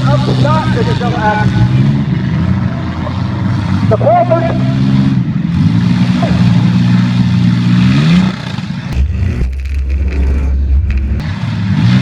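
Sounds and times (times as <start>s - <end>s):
car engines revving: 0.0s - 12.0s
low rumble: 8.9s - 11.3s.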